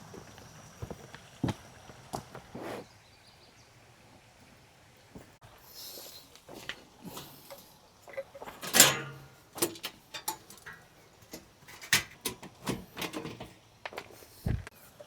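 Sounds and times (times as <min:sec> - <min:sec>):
objects clicking and knocking: 0:07.1 - 0:14.2.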